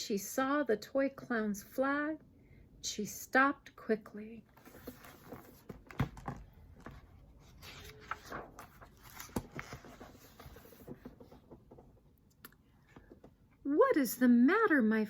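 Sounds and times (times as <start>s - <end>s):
paper rustling: 4.6s - 11.5s.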